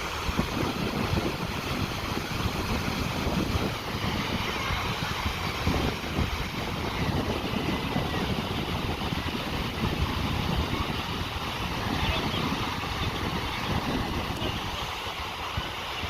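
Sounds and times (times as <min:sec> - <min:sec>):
sea washing on shore: 0:00.0 - 0:16.0
wind buffeting microphone: 0:00.0 - 0:16.0.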